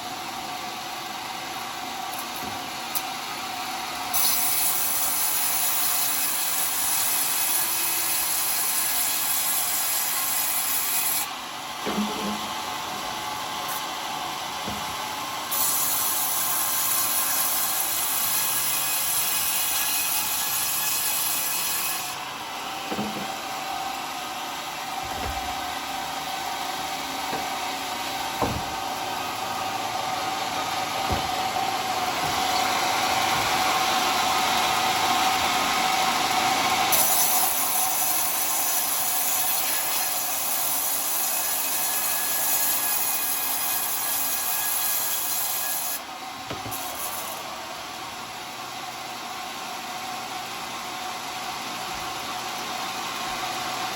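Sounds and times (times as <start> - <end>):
circular saw cutting log: 0.0 - 51.6
short knocks: 27.3 - 27.6, 28.4 - 28.9, 31.0 - 31.5.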